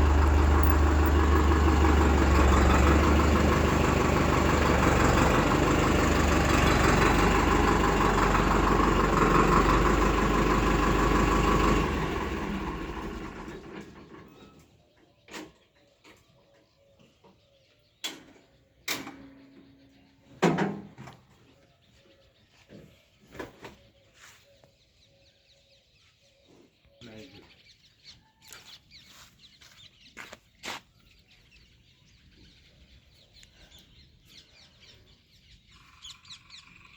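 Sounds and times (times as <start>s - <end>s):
diesel tractor engine running: 0.0s - 14.5s.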